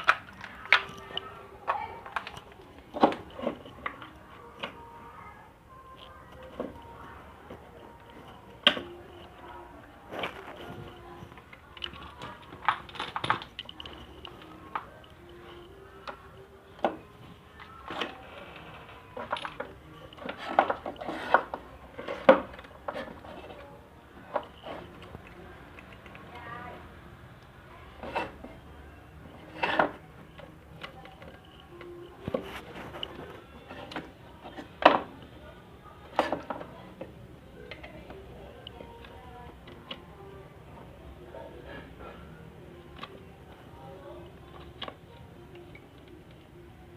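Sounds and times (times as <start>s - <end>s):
hard objects clicking and knocking: 0.0s - 4.8s, 5.9s - 26.7s, 29.2s - 35.3s, 36.0s - 40.1s.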